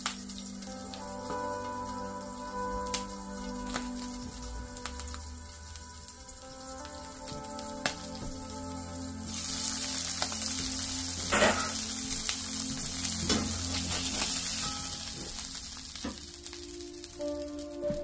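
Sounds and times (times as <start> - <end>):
burger patties sizzling in skillet: 0.0 - 18.0.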